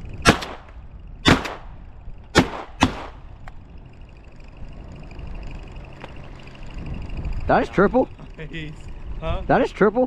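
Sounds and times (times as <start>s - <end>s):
shotgun blasts: 0.2s - 1.7s, 2.3s - 3.2s.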